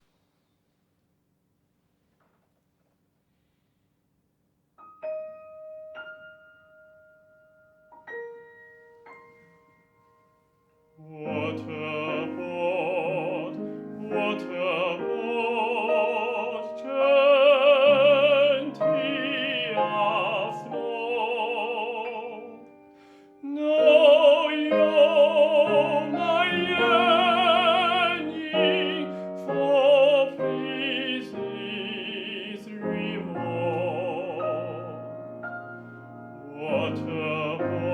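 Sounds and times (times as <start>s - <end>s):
operatic voice singing: 11.0s - 22.7s, 23.4s - 35.1s, 36.4s - 37.9s.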